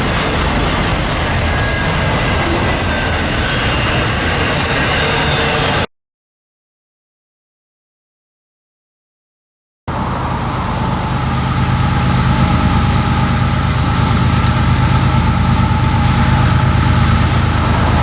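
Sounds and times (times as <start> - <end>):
diesel locomotive engines rumbling: 0.0 - 5.9, 9.9 - 18.0.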